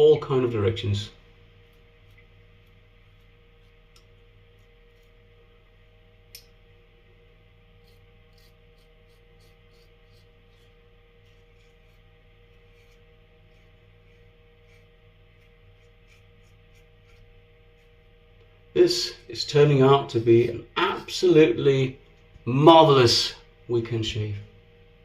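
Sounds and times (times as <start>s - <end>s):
safety razor cutting stubble: 7.8s - 12.0s, 12.7s - 17.9s.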